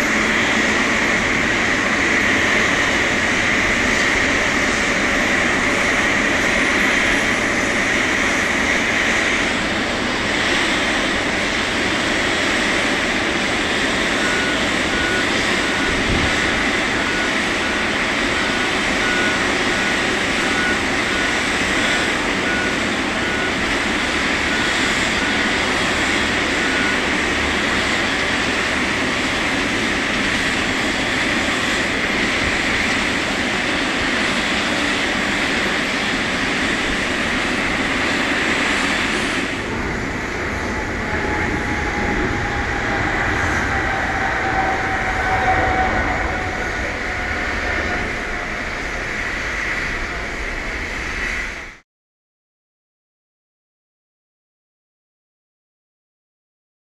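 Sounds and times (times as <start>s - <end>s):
aircraft and ground vehicles: 0.0s - 51.8s
pulsing beep: 13.7s - 28.7s, 40.4s - 49.2s
faint falling whine: 39.5s - 50.9s.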